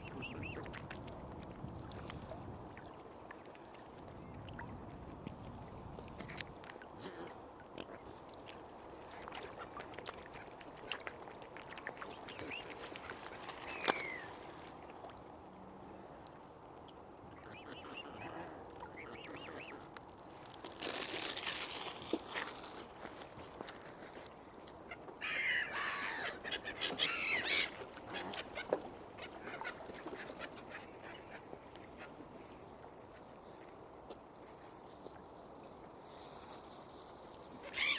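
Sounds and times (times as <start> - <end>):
waterfowl honking: 17.4 - 19.9.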